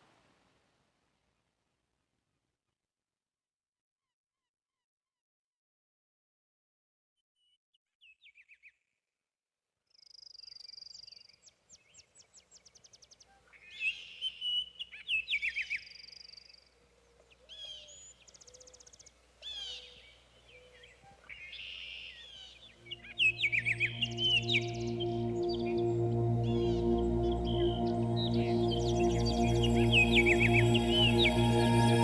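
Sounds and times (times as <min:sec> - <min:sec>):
songbirds singing: 0:11.8 - 0:32.0
low music tones: 0:22.8 - 0:32.0.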